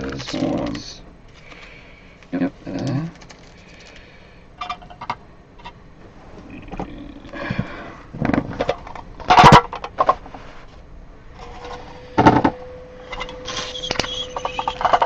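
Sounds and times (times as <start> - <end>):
cards rustling and clicking: 0.0 - 1.8, 2.7 - 4.1
faint steady hum: 0.0 - 15.0.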